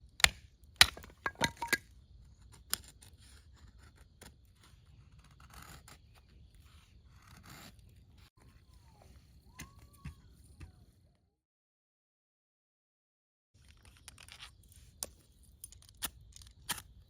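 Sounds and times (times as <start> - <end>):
sharp knocks of splitting firewood: 0.2 - 1.8.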